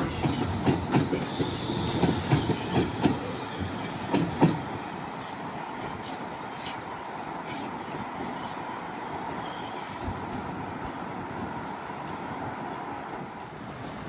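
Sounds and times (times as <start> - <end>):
metro train running on rails: 0.0 - 14.0.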